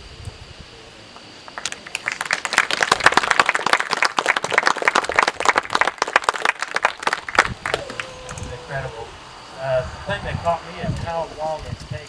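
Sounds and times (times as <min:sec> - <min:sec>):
audience applauding: 0:01.5 - 0:09.5.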